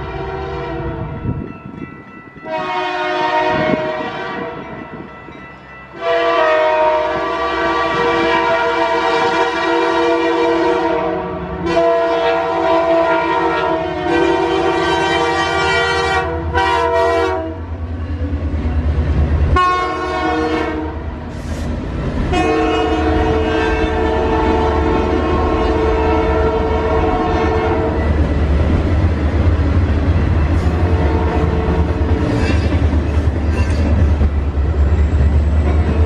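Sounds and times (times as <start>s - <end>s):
locomotive air horn blasts: 0.0s - 1.2s, 2.4s - 4.8s, 6.0s - 17.7s, 19.6s - 21.7s, 22.3s - 28.1s, 30.6s - 32.6s
train cars rumbling and clacking: 0.0s - 36.0s.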